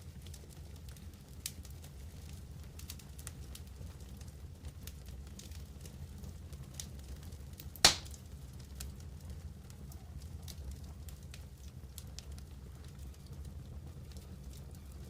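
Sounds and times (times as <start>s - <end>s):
campfire crackling: 0.1s - 9.8s, 10.4s - 15.0s
loud sharp pop of fire: 7.8s - 8.2s.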